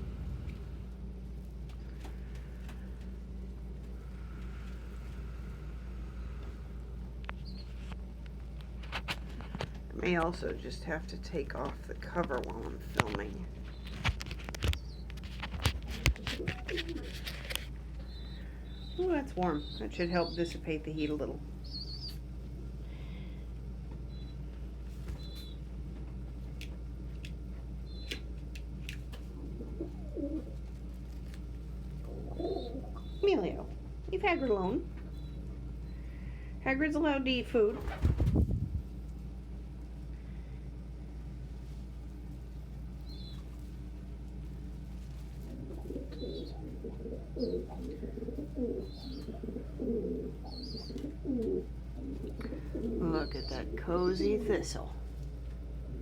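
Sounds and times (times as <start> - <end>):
small fan humming: 0.0 - 56.0
light clicks from birds: 12.2 - 20.4, 25.0 - 29.3
dove cooing: 15.8 - 20.6, 29.3 - 30.7, 32.0 - 35.5, 45.4 - 54.5.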